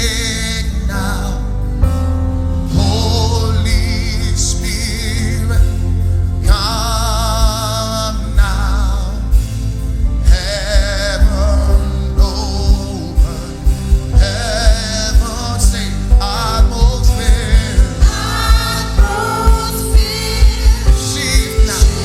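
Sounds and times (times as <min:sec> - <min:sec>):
band with heavy bass drum: 0:00.0 - 0:22.0
voices singing with vibrato: 0:10.3 - 0:22.0.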